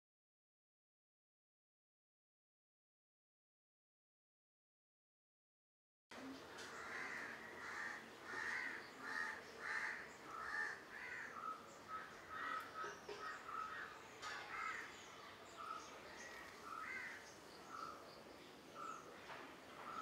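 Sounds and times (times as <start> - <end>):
birds calling: 6.2 - 20.0.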